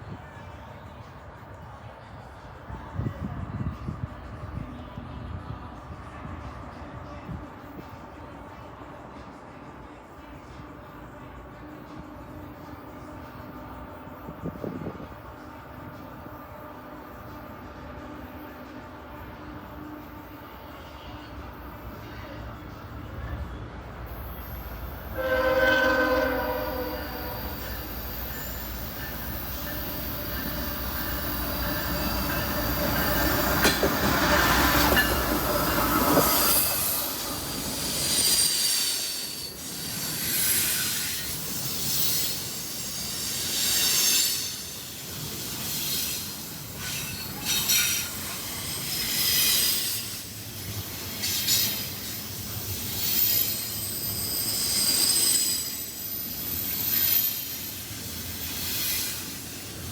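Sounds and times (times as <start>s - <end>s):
low rumble of locomotives: 0.0s - 59.9s
locomotive horn: 25.1s - 27.9s.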